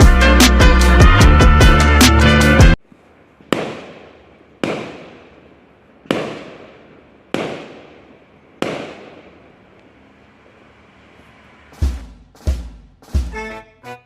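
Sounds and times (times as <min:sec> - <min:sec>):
fireworks bangs echoing: 0:03.4 - 0:09.6.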